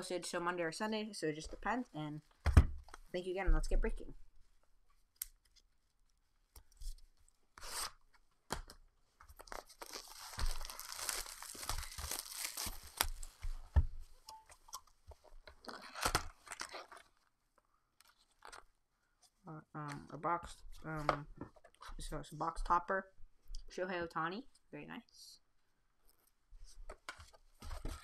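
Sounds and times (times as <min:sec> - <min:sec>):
plastic wrap tearing and crinkling: 0:08.6 - 0:13.5, 0:15.6 - 0:17.2.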